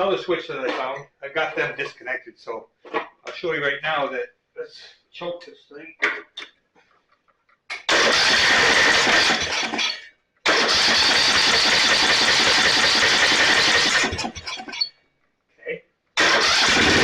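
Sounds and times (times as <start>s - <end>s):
mower engine cranking: 7.7s - 14.9s, 16.2s - 17.0s.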